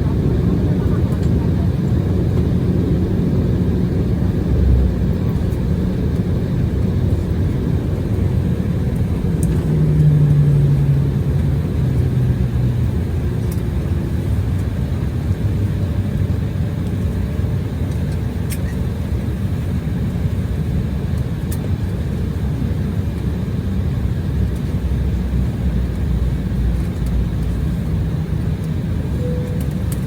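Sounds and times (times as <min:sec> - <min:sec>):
vehicle rumbling in motion: 0:00.0 - 0:16.6, 0:24.5 - 0:30.0
low hum: 0:29.1 - 0:30.0.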